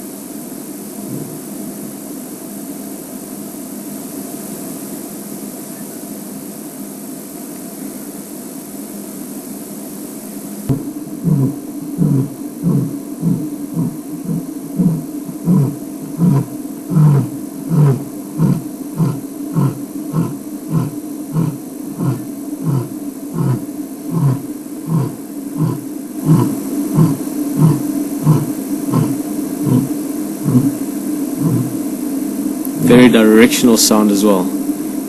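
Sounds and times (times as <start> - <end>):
steady hum: 0.0 - 35.0
lion roaring: 10.7 - 31.9.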